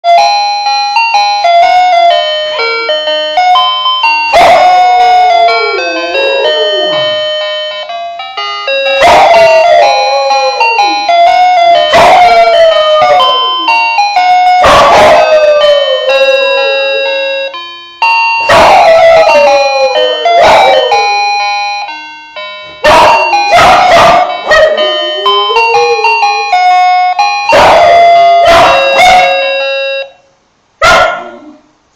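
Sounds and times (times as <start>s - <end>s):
keyboard tune: 0.0s - 30.2s
bell-like melody: 0.1s - 30.2s
dog howling: 4.3s - 7.2s, 8.9s - 17.3s, 18.5s - 21.2s, 22.8s - 26.8s, 27.5s - 29.5s.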